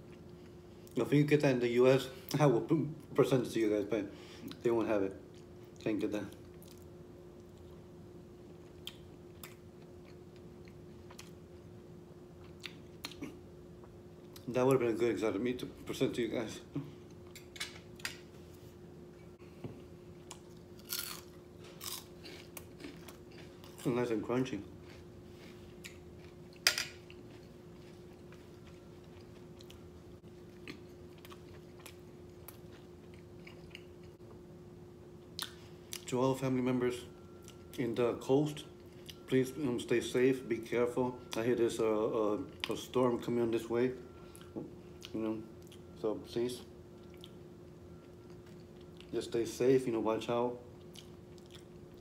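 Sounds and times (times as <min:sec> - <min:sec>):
steady low hum: 0:00.0 - 0:52.0
person chewing: 0:08.5 - 0:11.4, 0:12.4 - 0:13.4, 0:19.8 - 0:34.2, 0:35.2 - 0:36.1, 0:47.0 - 0:47.4, 0:48.0 - 0:49.2, 0:50.7 - 0:52.0
crunchy bite: 0:20.3 - 0:23.9.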